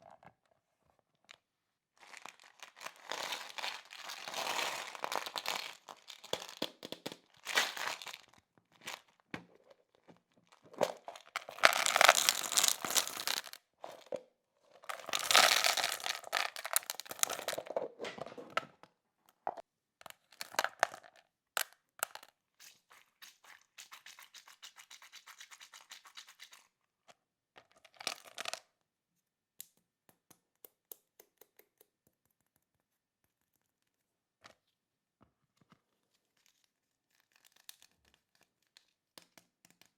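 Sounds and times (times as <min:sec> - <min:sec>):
plastic packaging crinkling and tearing: 0:02.0 - 0:09.2, 0:10.4 - 0:14.1, 0:14.9 - 0:17.7.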